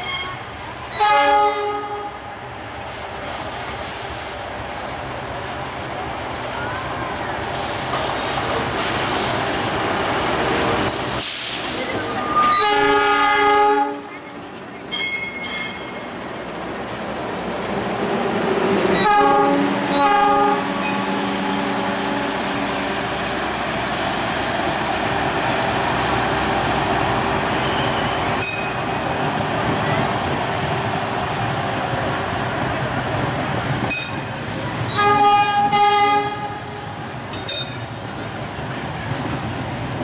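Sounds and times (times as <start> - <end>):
train horn blasts: 0.0 - 2.2, 12.2 - 14.1, 18.9 - 22.7, 34.9 - 36.9
train rumbling past: 0.0 - 40.0.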